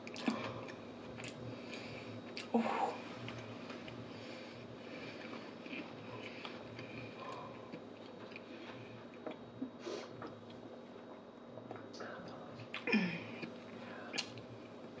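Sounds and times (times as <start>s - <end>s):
person chewing: 0.0s - 2.5s, 3.2s - 10.6s, 12.6s - 14.5s.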